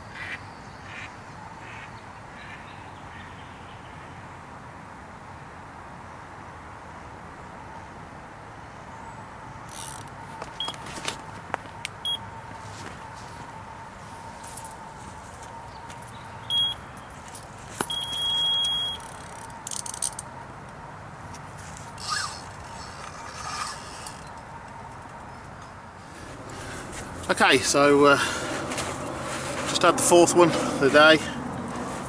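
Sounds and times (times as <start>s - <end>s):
bite alarm beeping: 12.0s - 12.3s, 16.4s - 17.0s, 17.8s - 19.2s.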